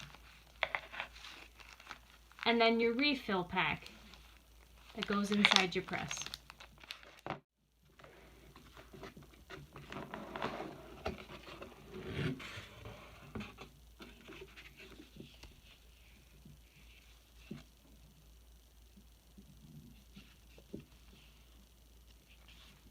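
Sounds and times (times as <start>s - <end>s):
plastic packaging rustling: 0.0s - 2.5s, 3.8s - 7.4s.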